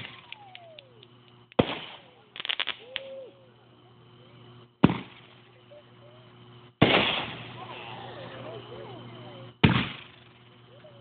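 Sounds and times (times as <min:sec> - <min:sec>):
fireworks loud bangs: 0:00.0 - 0:00.6, 0:01.5 - 0:02.9, 0:04.8 - 0:05.3, 0:06.8 - 0:08.0, 0:09.6 - 0:10.4
fireworks crackling pops: 0:00.0 - 0:03.2, 0:04.8 - 0:05.5, 0:06.8 - 0:07.7, 0:09.6 - 0:10.4.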